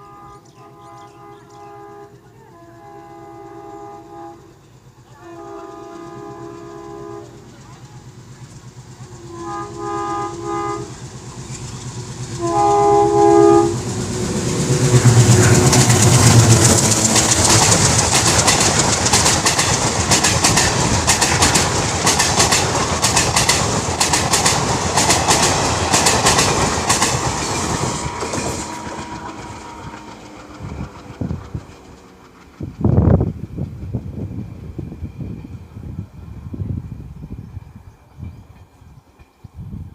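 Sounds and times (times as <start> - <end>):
train horn blasts: 0.0 - 7.5, 9.1 - 11.1, 12.3 - 17.9, 27.5 - 30.8
train wheels clattering over rails: 4.4 - 35.4.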